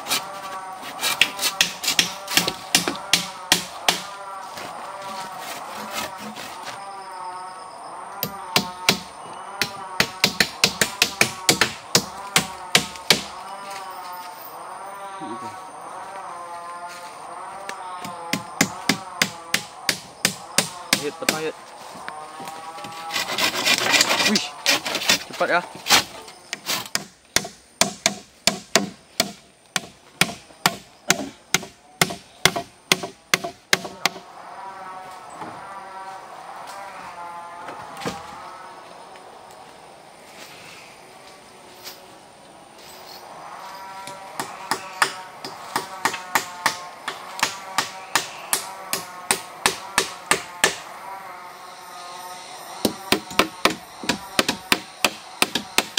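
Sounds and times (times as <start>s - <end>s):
tool striking wood: 1.1s - 4.1s, 8.2s - 13.3s, 18.0s - 21.5s, 25.9s - 34.2s, 44.3s - 50.8s, 52.8s - 55.9s.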